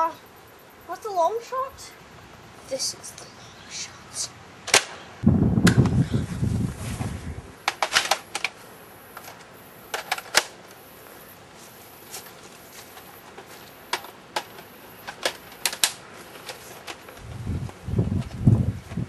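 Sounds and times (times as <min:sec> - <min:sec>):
plastic toy blaster clicks: 0:13.9 - 0:17.0.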